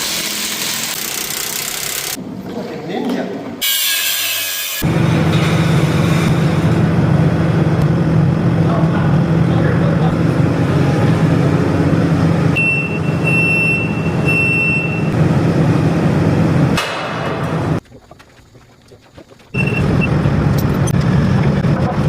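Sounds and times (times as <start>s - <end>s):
truck engine running: 4.9s - 17.8s, 19.5s - 22.0s
short high-pitched beeps: 12.6s - 15.1s.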